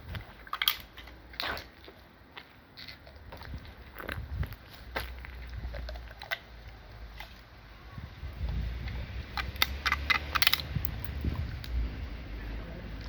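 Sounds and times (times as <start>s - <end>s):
dog crunching a walnut: 4.9s - 7.4s.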